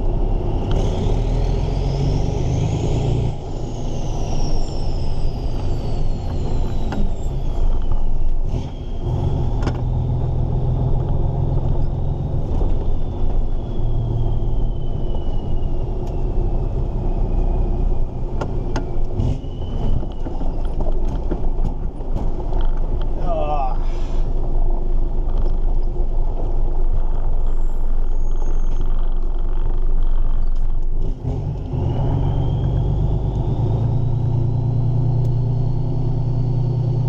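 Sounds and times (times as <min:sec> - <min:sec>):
road rumble: 0:00.0 - 0:37.0
faint high whistle: 0:12.7 - 0:16.4, 0:19.2 - 0:20.7.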